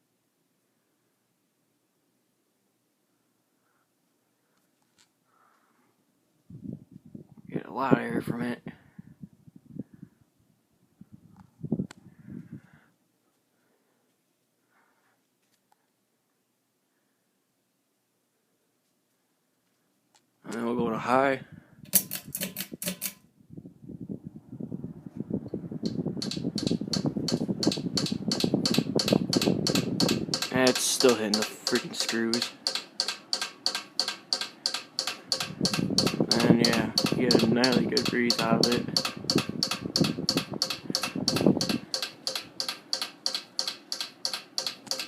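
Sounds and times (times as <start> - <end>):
ceiling fan rumble: 20.5 - 45.0
fan blades ticking on screws: 21.9 - 23.2, 25.8 - 45.0.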